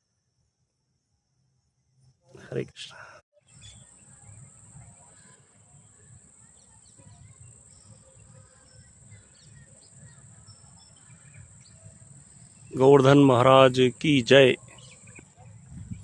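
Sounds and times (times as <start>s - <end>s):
bird chirps: 3.4s - 13.4s, 14.4s - 16.0s.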